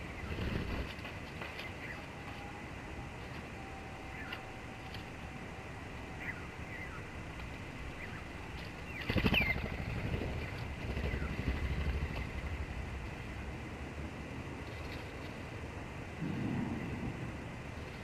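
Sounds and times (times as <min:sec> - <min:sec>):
passing traffic rumble: 0:00.0 - 0:18.0
sparrows chirping: 0:01.5 - 0:02.1, 0:06.1 - 0:07.2, 0:07.8 - 0:12.5.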